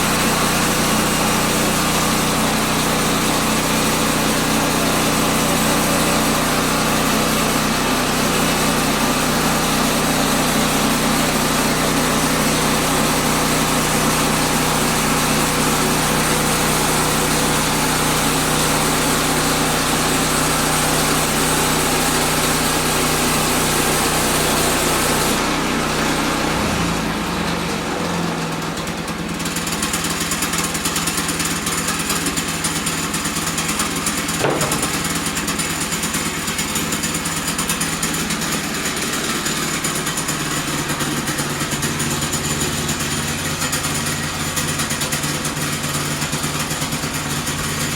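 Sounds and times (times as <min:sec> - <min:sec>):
small gas engine running: 0:00.0 - 0:47.9
band blade cutting log: 0:33.5 - 0:36.9.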